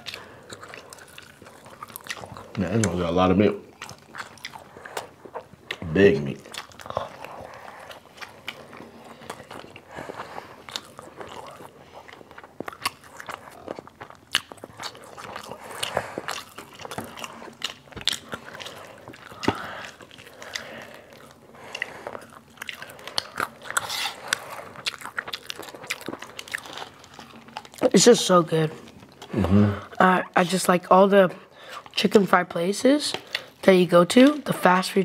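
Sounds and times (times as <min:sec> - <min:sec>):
wet chewing: 0:00.0 - 0:30.5, 0:32.9 - 0:34.6
fried chicken crunching: 0:03.8 - 0:27.9.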